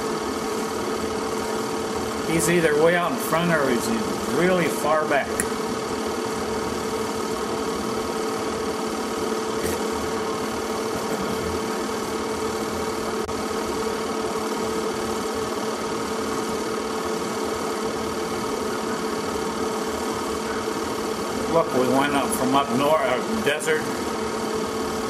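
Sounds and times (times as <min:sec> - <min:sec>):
steady mechanical hum: 0:00.0 - 0:25.0.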